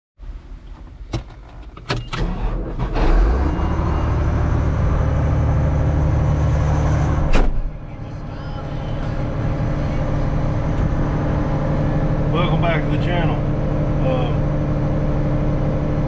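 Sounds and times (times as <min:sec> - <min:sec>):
vehicle engine running: 0:02.9 - 0:16.0.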